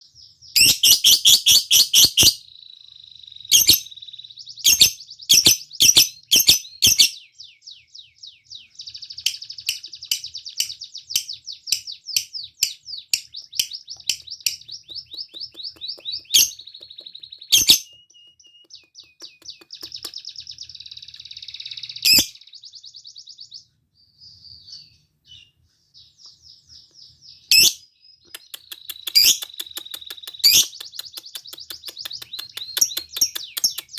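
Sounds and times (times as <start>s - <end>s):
soft bird chatter: 0.0s - 33.9s
lovebird rapid trill: 0.5s - 7.3s, 8.7s - 23.1s, 28.4s - 33.9s
lovebird shrill chirps: 0.5s - 7.7s, 8.3s - 23.6s, 27.4s - 33.9s.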